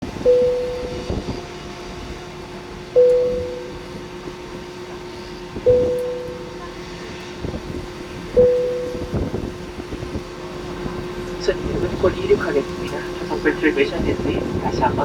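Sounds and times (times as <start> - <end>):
low hum: 0.0 - 15.0
struck ringing tone: 0.3 - 1.2, 3.0 - 4.0, 5.7 - 6.7, 8.4 - 9.3.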